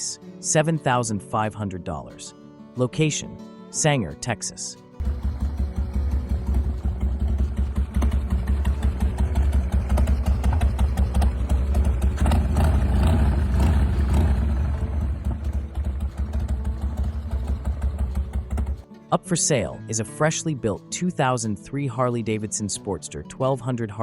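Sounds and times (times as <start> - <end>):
motorcycle engine pulsing exhaust: 5.0 - 18.8.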